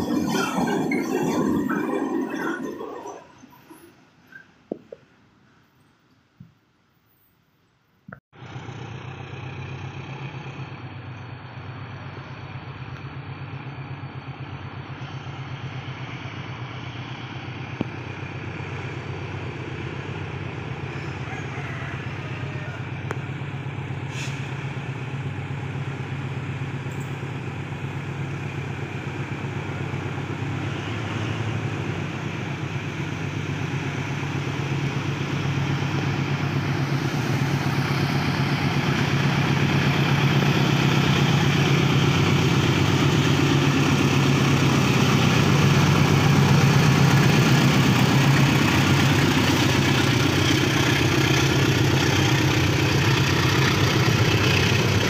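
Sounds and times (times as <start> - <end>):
diesel locomotive engine drone: 0.0 - 7.3, 8.4 - 55.0.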